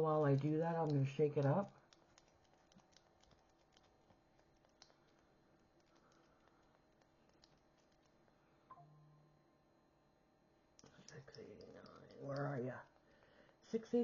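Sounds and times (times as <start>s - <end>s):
faint clicks of paint markers: 0.1s - 8.4s, 10.8s - 14.0s.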